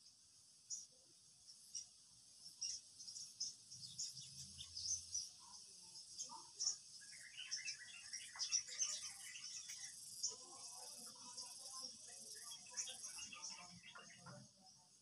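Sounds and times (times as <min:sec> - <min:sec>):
insects chirring: 0:00.4 - 0:15.0.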